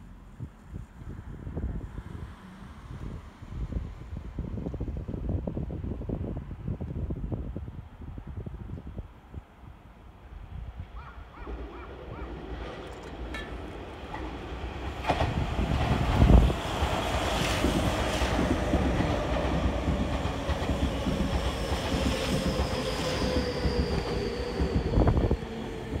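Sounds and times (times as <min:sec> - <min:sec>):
train rumble and wheel clatter: 0:00.0 - 0:26.0
wheels clacking over rail joints: 0:11.5 - 0:24.1.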